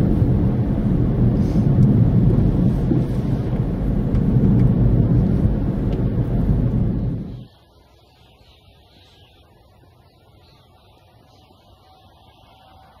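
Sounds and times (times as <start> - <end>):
thunder rumble: 0.0 - 7.5.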